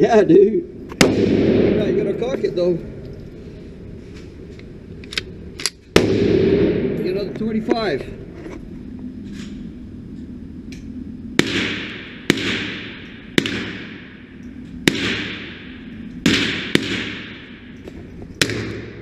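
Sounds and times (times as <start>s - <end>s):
rifle gunshots with echo: 0.9s - 2.6s, 5.9s - 7.1s, 11.4s - 17.8s, 18.4s - 19.0s.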